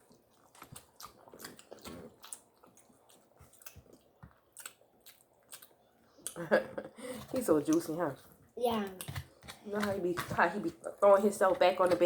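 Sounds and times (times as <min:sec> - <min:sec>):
wet chewing mouth sounds: 0:00.0 - 0:06.4, 0:07.0 - 0:11.0.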